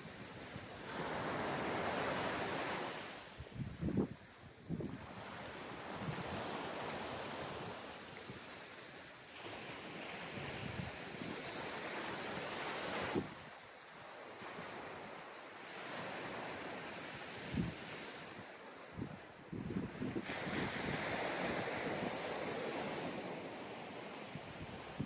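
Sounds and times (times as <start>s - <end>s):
sea waves breaking on beach: 0.0s - 25.0s
wind buffeting microphone: 3.4s - 5.3s, 17.2s - 18.0s, 18.9s - 23.1s.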